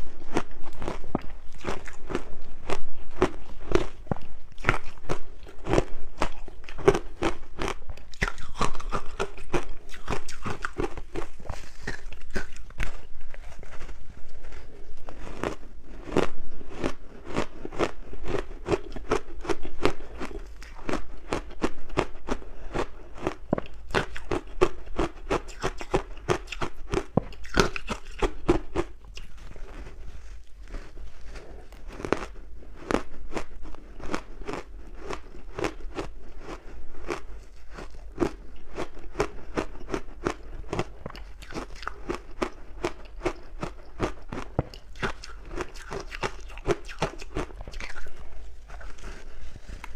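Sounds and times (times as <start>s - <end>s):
ice being chewed: 0.0s - 49.9s.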